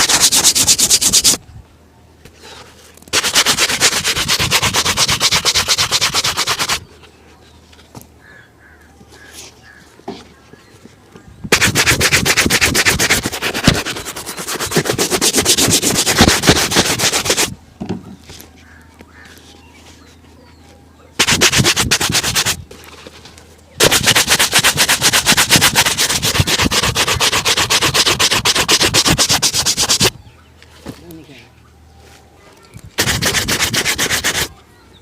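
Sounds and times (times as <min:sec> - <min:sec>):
shoe being buffed: 0:00.0 - 0:01.4, 0:03.2 - 0:06.8, 0:11.5 - 0:17.6, 0:21.2 - 0:22.6, 0:23.8 - 0:30.1, 0:33.0 - 0:34.5.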